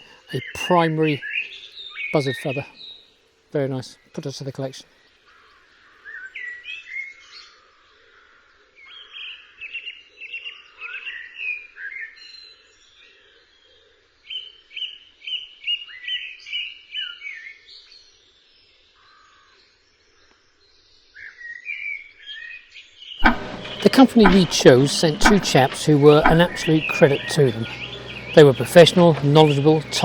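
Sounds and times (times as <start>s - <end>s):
songbird singing: 23.2s - 30.0s.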